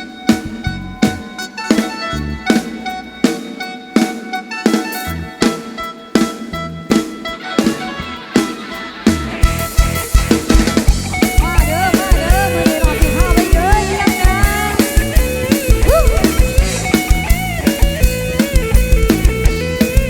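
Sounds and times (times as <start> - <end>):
bass: 0.0 - 3.3, 5.0 - 5.6, 6.2 - 20.0
drum kit beat: 0.0 - 20.0
lead instrument melody: 9.6 - 20.0.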